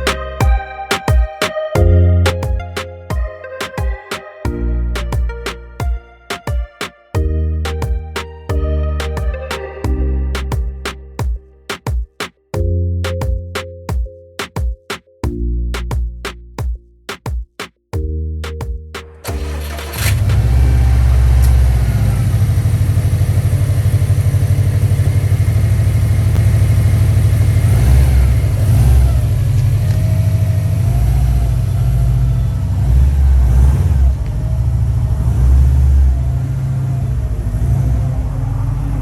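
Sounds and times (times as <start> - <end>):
car engine starting and running: 0.0 - 1.1, 19.0 - 39.0.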